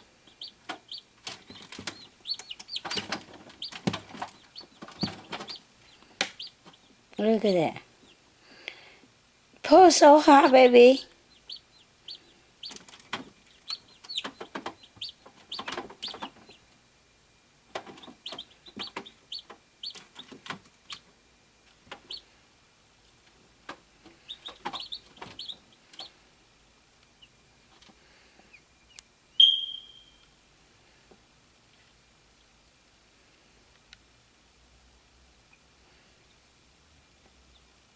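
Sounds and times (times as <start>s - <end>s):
chick peeping: 0.2s - 8.3s, 11.3s - 16.8s, 17.7s - 21.1s, 21.7s - 22.3s, 23.6s - 26.2s.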